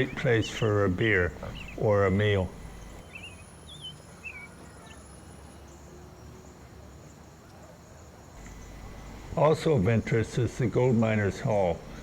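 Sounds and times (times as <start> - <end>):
warbling bird chirps: 0.0 - 5.1.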